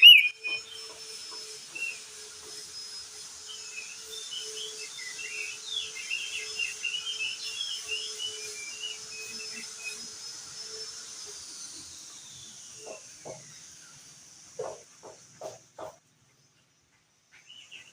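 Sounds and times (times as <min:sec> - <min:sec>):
short low bird calls: 0:00.0 - 0:00.6
bird twittering song: 0:00.0 - 0:00.9, 0:16.4 - 0:17.9
steady high whistle-like tone: 0:00.0 - 0:12.6.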